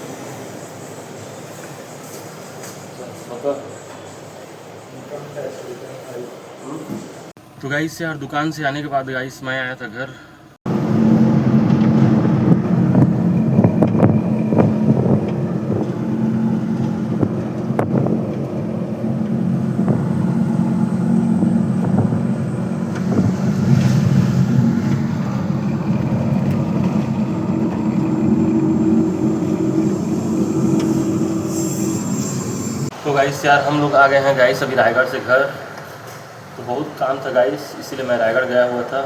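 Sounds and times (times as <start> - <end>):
vehicle engine running: 10.7 - 32.9
wind buffeting microphone: 10.7 - 32.9.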